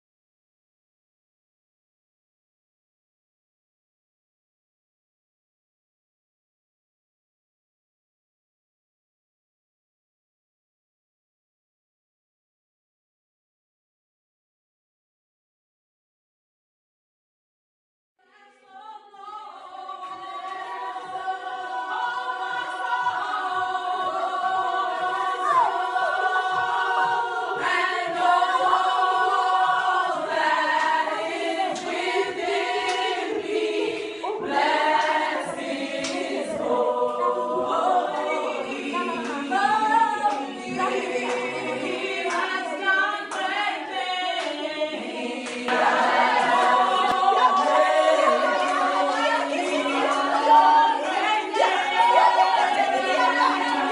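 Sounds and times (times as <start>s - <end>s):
choir singing in harmony: 18.4s - 53.9s.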